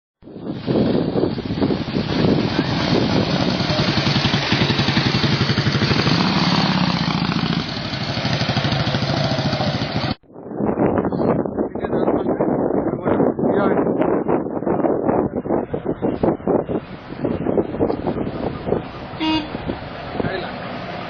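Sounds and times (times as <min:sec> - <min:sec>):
engine running: 0:01.6 - 0:10.2.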